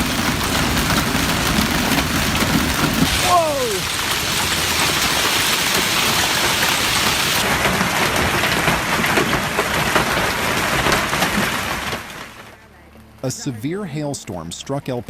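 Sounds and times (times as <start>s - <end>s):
hail and heavy rain pelting: 0.0s - 12.5s.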